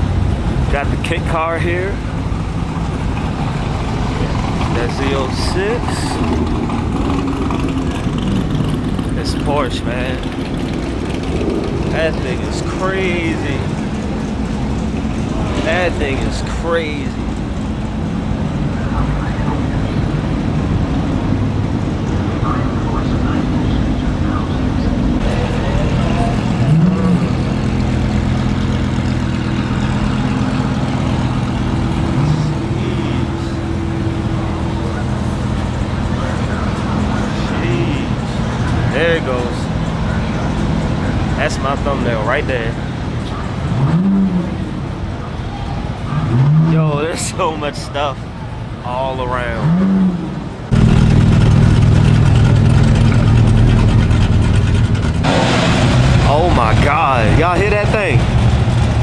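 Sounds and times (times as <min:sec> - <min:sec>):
car engines idling in traffic: 0:00.0 - 0:59.0.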